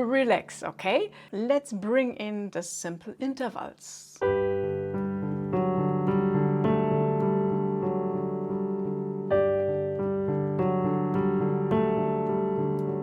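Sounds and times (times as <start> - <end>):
piano playing: 4.2 - 13.0.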